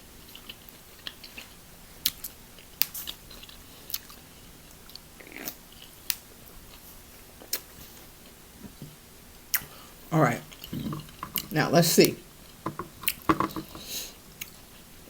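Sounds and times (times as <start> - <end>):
person chewing with mouth clicks: 0.2 - 8.4, 10.4 - 11.6.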